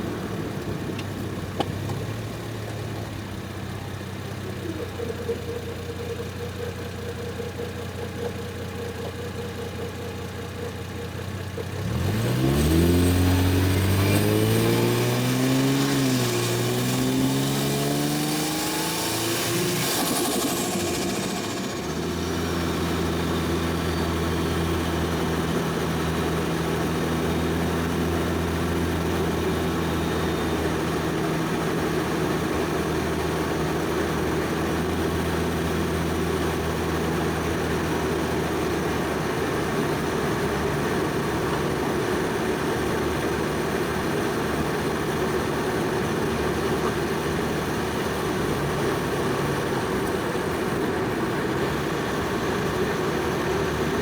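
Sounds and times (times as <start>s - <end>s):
car engine droning: 0.0s - 54.0s
rough rushing sound: 18.4s - 23.2s.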